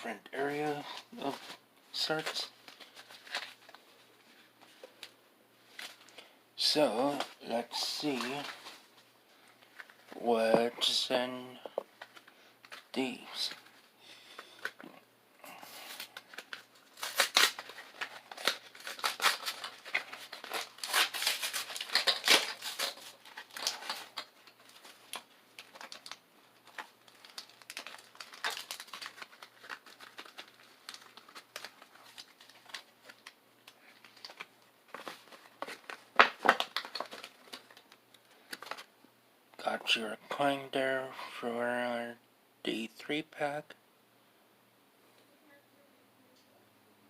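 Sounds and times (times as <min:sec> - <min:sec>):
plastic and foil wrappers tearing: 0:00.9 - 0:03.8, 0:15.7 - 0:38.9.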